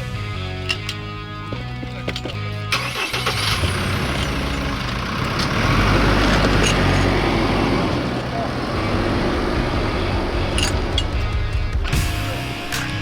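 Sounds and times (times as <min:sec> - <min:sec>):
music: 0:00.0 - 0:13.0
mechanical running with low rumble: 0:03.6 - 0:11.8.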